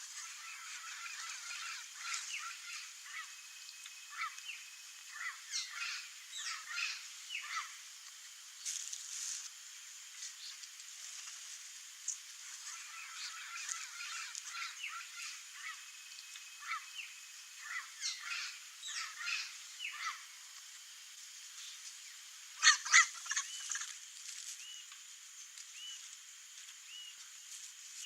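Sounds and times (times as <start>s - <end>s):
parrots squawking: 5.1s - 7.8s, 17.6s - 20.2s, 22.6s - 23.8s.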